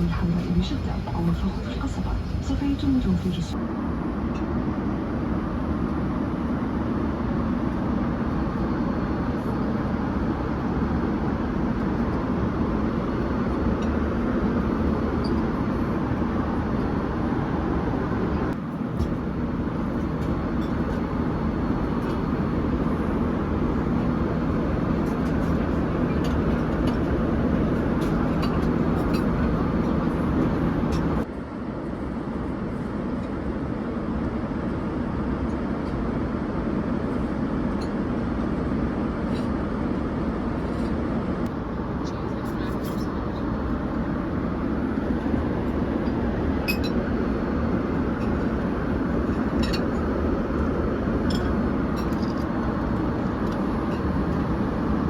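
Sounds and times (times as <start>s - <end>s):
airliner cabin engine noise: 0.0s - 55.0s.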